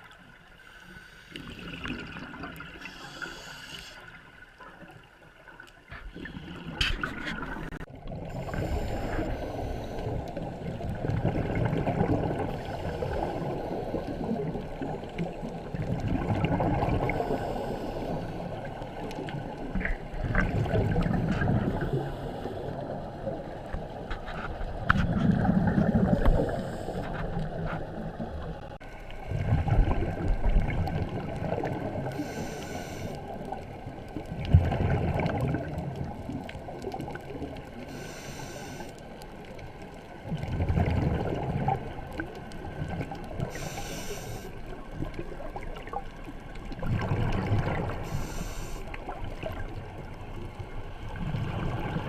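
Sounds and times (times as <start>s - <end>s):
exhaled bubbles gurgling: 1.3s - 5.1s, 5.9s - 52.0s
regulator hissing inhalations: 2.8s - 4.2s, 8.4s - 10.2s, 32.1s - 33.3s, 37.9s - 39.0s, 43.5s - 44.6s, 48.0s - 48.9s.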